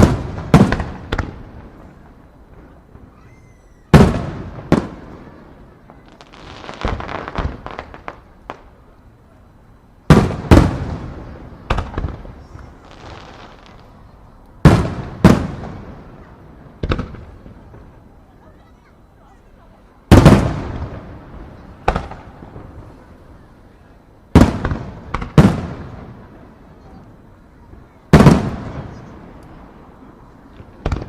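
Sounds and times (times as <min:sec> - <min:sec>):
fireworks shells booming: 0:00.0 - 0:09.0, 0:10.0 - 0:18.2, 0:20.1 - 0:23.5, 0:24.3 - 0:31.0
fireworks small pops: 0:30.5 - 0:31.0.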